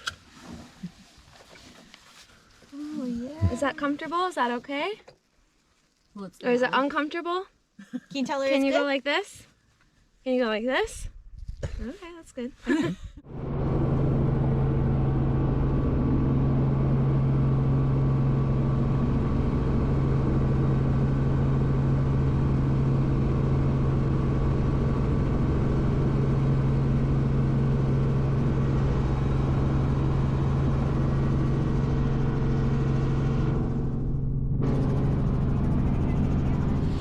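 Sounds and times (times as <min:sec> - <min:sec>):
helicopter cabin drone: 0:13.2 - 0:37.0.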